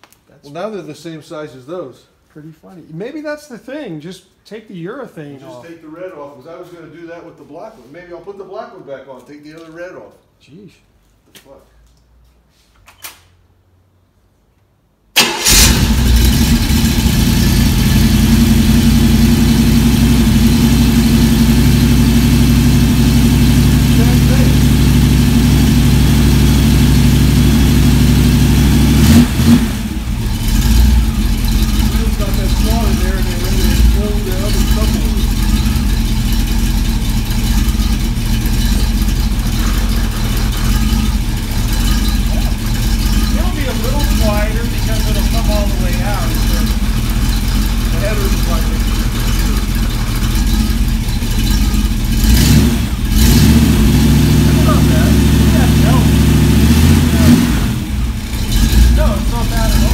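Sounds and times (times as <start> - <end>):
engine starting and running: 15.1 - 59.9.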